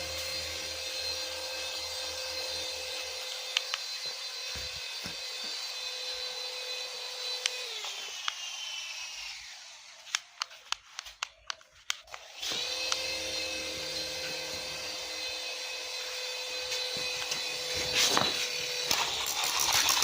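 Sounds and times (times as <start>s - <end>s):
small electric motor whining: 0.0s - 11.2s, 11.9s - 20.0s
sharp clicks: 10.1s - 13.1s.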